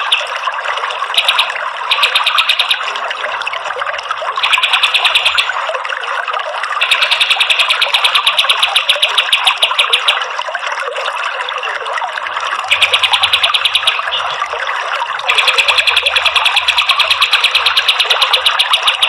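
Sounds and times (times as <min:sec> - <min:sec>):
bird trilling: 0:01.2 - 0:02.8, 0:04.4 - 0:05.6, 0:06.8 - 0:10.1, 0:12.7 - 0:14.6.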